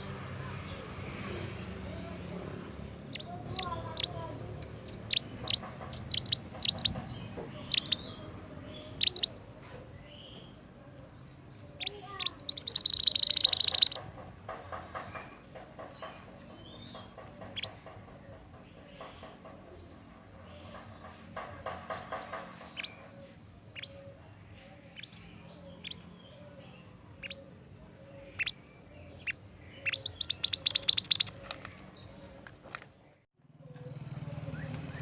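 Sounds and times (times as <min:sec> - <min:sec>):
bird chattering: 0:03.1 - 0:09.4, 0:11.5 - 0:32.4
bird fast trill: 0:04.9 - 0:07.0, 0:07.7 - 0:08.1, 0:11.8 - 0:14.0, 0:29.2 - 0:31.4
bird calling high sharp notes: 0:11.8 - 0:14.0, 0:29.8 - 0:31.4.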